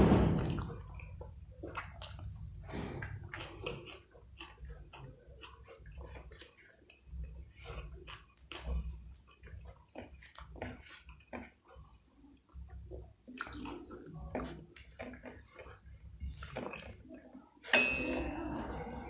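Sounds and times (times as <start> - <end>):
sudden loud sound: 0.0 - 0.7
person chewing food: 0.5 - 17.4.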